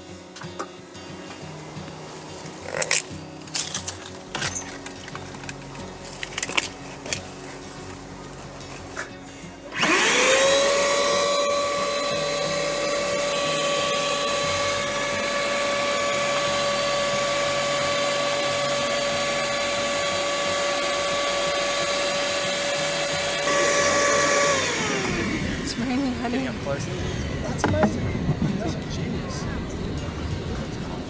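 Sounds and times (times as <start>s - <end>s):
electric motor whining: 0.0s - 31.0s.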